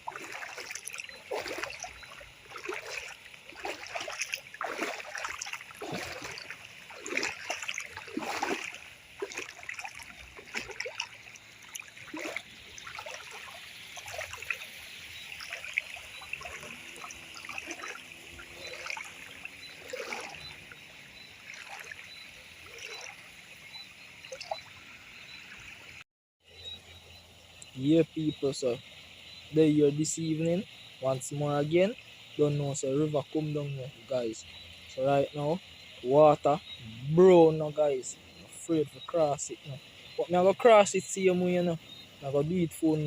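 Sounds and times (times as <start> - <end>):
river water rushing: 0.0 - 20.8, 21.4 - 22.0
water splashing: 0.0 - 25.4.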